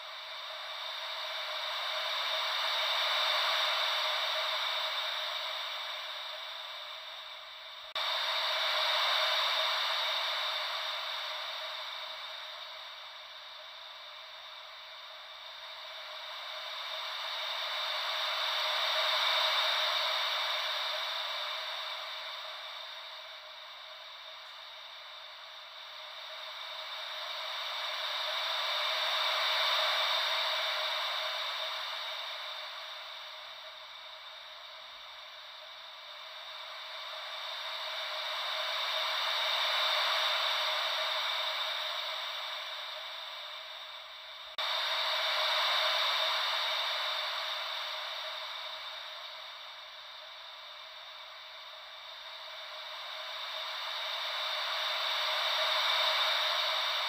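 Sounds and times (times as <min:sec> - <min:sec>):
white noise ocean waves: 0:00.2 - 0:57.0.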